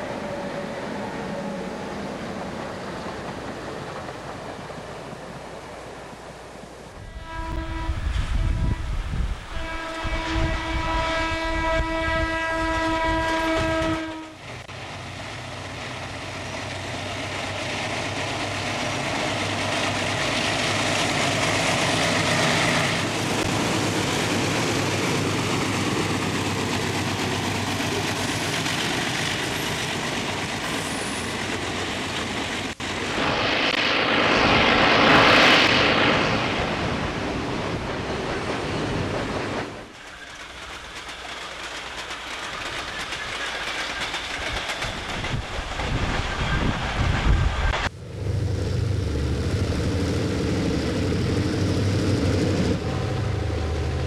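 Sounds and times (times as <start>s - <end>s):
train rolling past: 0.0s - 54.0s
train horn blast: 7.0s - 14.5s, 52.8s - 54.0s.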